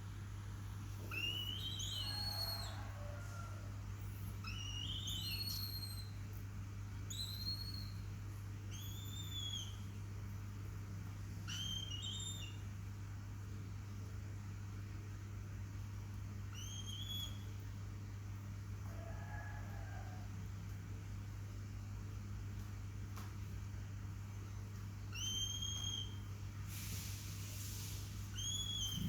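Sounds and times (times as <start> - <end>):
steady low hum: 0.0 - 18.9, 20.2 - 29.0
falcon whistling cries: 1.2 - 2.9, 4.5 - 6.1, 7.1 - 8.0, 28.4 - 29.0.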